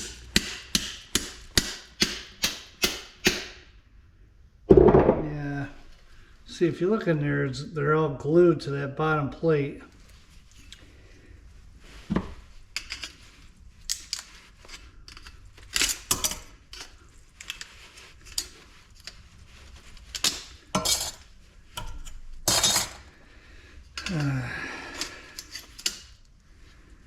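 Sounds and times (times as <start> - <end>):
metal plates clinking and scraping: 20.2 - 23.1
metal parts clattering: 21.8 - 23.1.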